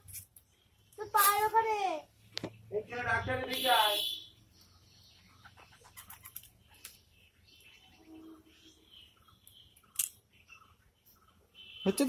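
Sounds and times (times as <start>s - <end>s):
faint bird chirps: 3.6s - 12.0s.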